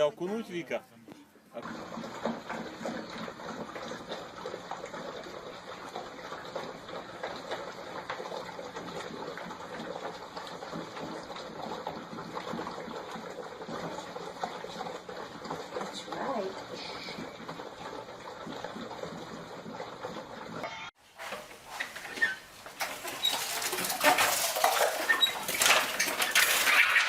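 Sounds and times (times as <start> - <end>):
small water splashes or drips: 1.6 - 20.6
water rushing patter: 1.6 - 27.0.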